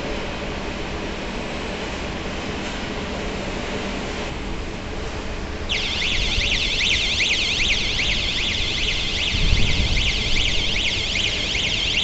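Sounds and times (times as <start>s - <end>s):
electronic alarm sweeping tone: 5.7s - 12.0s.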